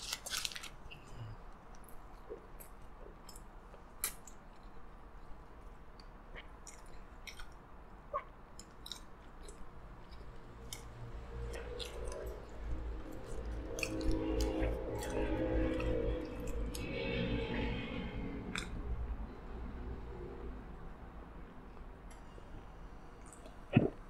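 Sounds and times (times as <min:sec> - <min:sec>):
person chewing: 0:06.3 - 0:17.6, 0:18.5 - 0:18.8
low rumble: 0:10.4 - 0:21.5.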